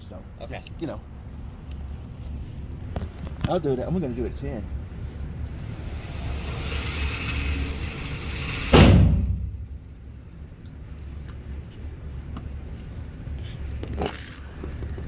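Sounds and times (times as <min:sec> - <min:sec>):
loud bang: 0:05.5 - 0:10.2
target carrier whirring: 0:05.5 - 0:10.2.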